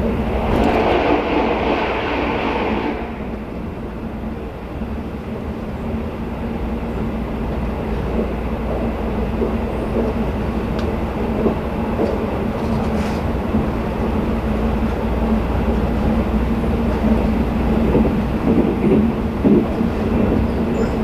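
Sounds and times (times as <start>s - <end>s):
passing train rush: 0.0s - 21.0s
train wheels rolling on rail: 0.0s - 21.0s
light clicks from rails: 7.5s - 13.8s.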